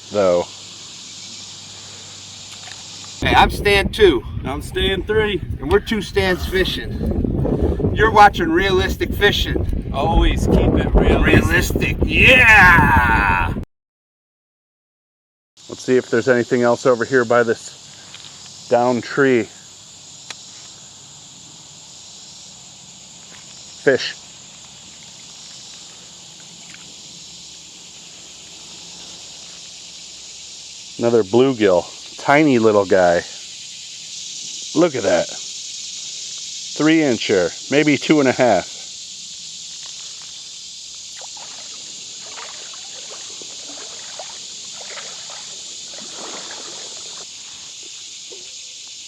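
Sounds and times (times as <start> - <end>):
insects buzzing: 0.0 - 12.7, 15.6 - 49.0
water splashing: 41.1 - 48.5.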